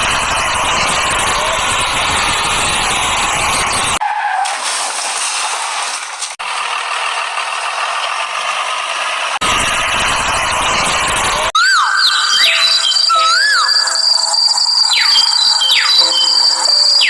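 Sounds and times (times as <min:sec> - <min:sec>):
loud vehicle rumble: 0:00.0 - 0:11.6.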